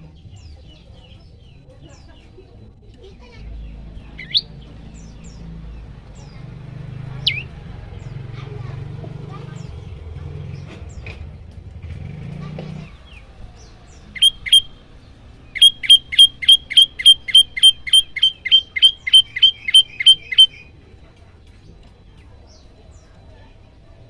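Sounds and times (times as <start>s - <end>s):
bird calling sharp notes: 4.1s - 5.3s, 7.0s - 7.6s, 13.9s - 20.7s.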